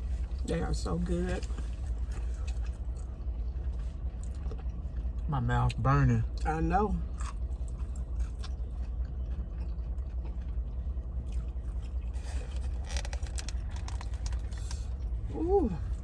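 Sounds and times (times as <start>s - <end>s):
steady low hum: 0.0s - 16.0s
person chewing food: 1.3s - 16.0s.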